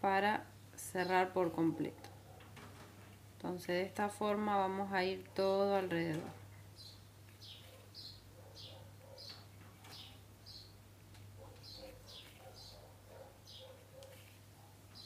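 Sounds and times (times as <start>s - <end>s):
small bird chirping: 6.8s - 10.8s, 11.4s - 14.1s.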